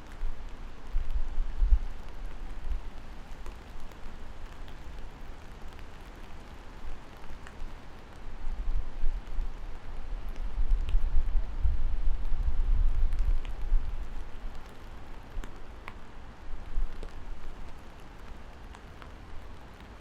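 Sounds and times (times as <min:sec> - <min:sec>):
steady rain falling: 0:00.0 - 0:20.0
faint drip ticks: 0:10.2 - 0:11.0, 0:13.1 - 0:20.0.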